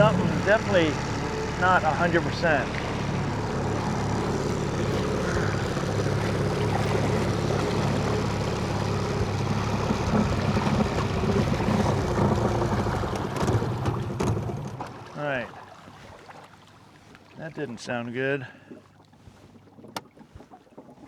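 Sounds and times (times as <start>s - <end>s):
person talking: 0.0s - 3.9s, 17.4s - 18.5s
boat engine running roughly: 0.0s - 16.2s.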